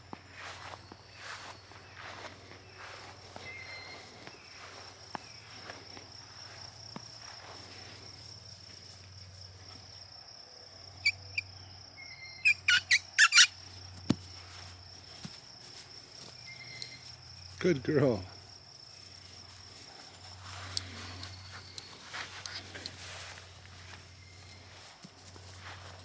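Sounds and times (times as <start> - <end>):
insect trilling: 9.9 - 14.0
loud sharp chirps: 12.1 - 13.6.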